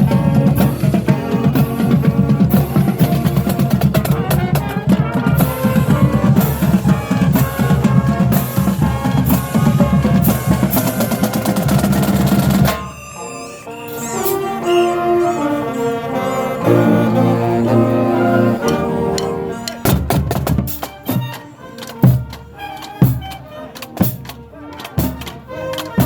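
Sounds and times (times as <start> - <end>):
snare and bass drums: 0.0 - 12.8, 19.8 - 21.4, 22.0 - 26.0
marching band playing: 0.0 - 26.0.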